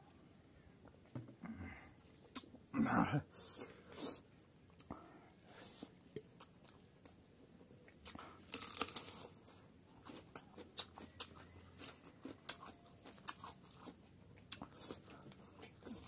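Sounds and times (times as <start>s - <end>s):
person chewing food: 4.0s - 16.0s.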